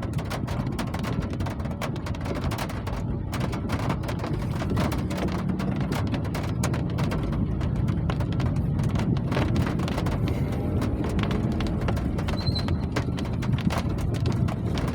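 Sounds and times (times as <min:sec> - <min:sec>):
deep low rumble: 0:00.0 - 0:14.9
raindrops clicking: 0:00.0 - 0:14.9
hard rain falling: 0:00.2 - 0:14.9.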